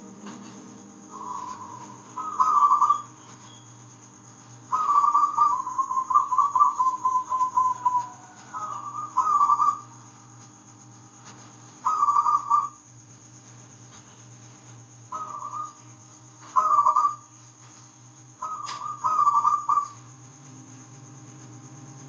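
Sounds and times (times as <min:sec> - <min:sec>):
low steady hum: 0:00.0 - 0:22.0
dove cooing in trills: 0:01.1 - 0:03.5, 0:04.6 - 0:10.1, 0:11.8 - 0:12.8, 0:15.1 - 0:17.4, 0:18.4 - 0:20.2.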